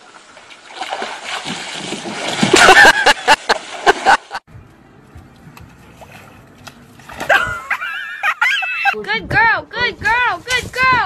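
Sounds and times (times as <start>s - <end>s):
water splash: 0.0s - 4.4s, 5.9s - 7.8s.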